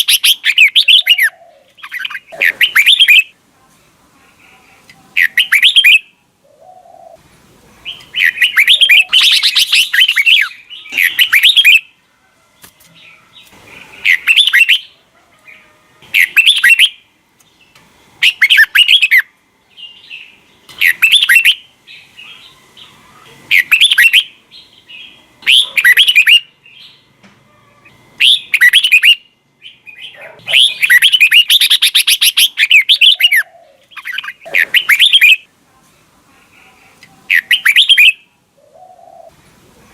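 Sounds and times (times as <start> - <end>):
bird singing whistled phrases: 0.0 - 3.3, 5.2 - 6.1, 7.9 - 11.9, 14.1 - 14.9, 16.2 - 17.0, 18.2 - 21.6, 23.5 - 24.3, 25.4 - 26.8, 28.2 - 35.4, 37.3 - 38.2.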